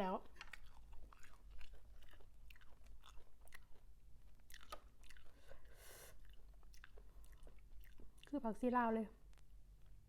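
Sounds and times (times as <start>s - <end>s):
person chewing crunchy food: 0.1s - 8.4s
breathy hiss: 5.3s - 6.2s.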